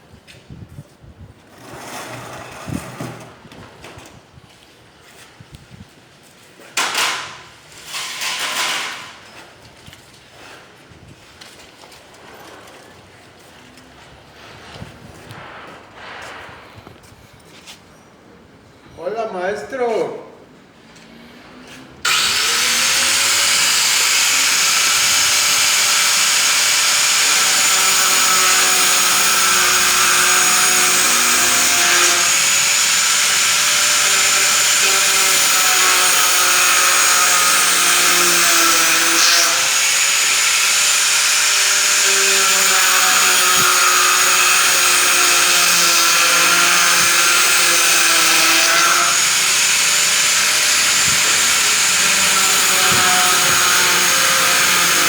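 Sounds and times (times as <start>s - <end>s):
power tool hissing and humming: 22.0s - 55.0s.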